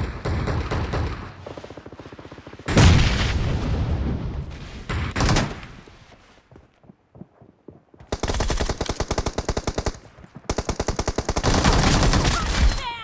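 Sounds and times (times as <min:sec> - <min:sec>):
rapid automatic gunfire: 0:08.1 - 0:12.7.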